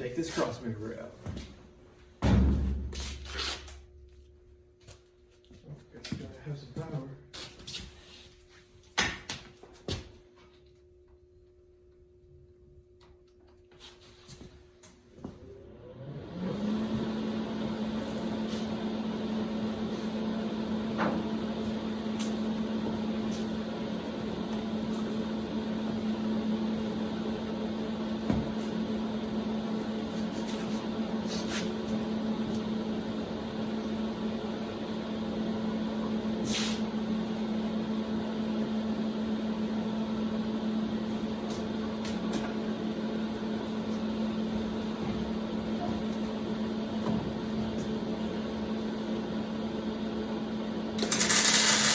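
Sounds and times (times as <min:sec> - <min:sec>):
welder electric hum: 0:16.6 - 0:51.9.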